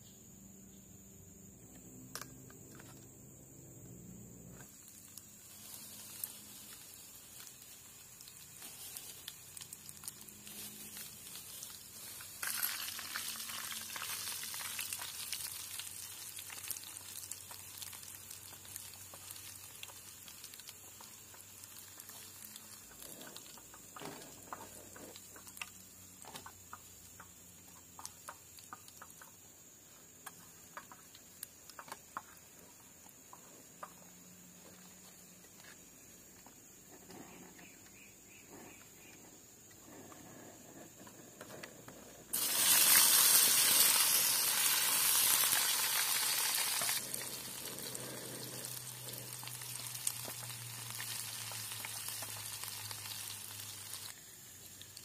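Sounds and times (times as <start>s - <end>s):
small crackles and clicks: 4.5s - 37.8s, 38.6s - 55.0s
food sizzling in hot oil: 4.6s - 24.0s, 42.3s - 55.0s.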